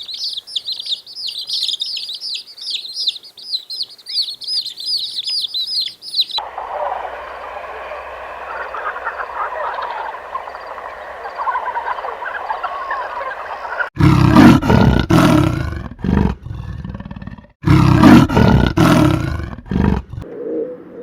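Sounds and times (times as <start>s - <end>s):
bird chirping high notes: 0.0s - 14.0s
lower bird calls: 0.0s - 14.0s.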